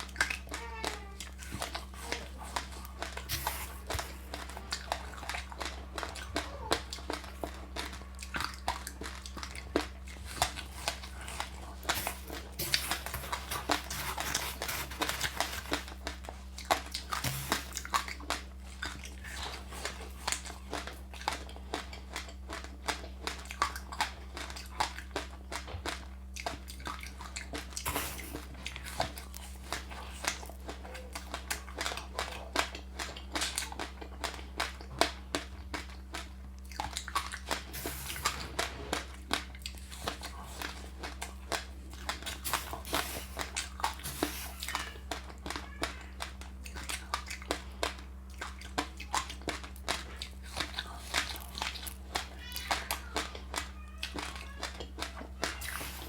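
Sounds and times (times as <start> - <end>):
chewing and crunching: 0.0 - 56.0.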